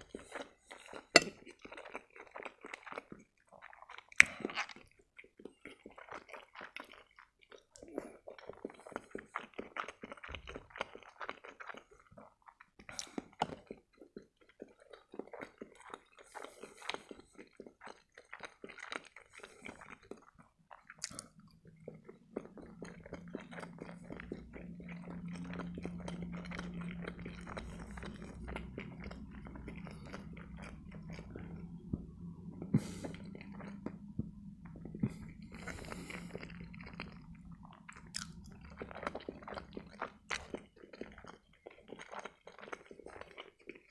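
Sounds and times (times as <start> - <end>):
wet chewing and smacking: 0.0 - 43.9
low steady hum: 21.0 - 41.4.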